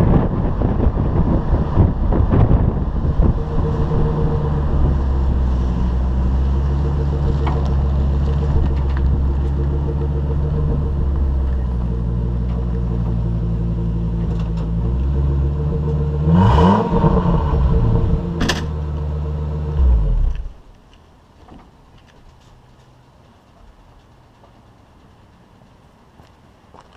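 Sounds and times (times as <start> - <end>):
engine running: 0.0 - 20.8.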